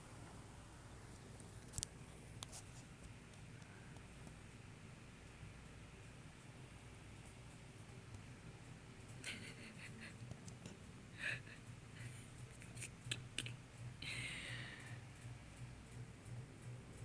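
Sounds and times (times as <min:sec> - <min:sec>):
kittens scratching and shuffling: 0:01.1 - 0:04.4, 0:09.0 - 0:13.7.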